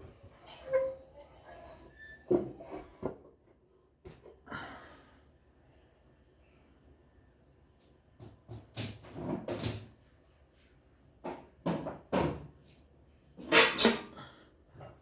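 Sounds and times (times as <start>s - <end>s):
knocks and scraping clatters: 1.6s - 3.2s.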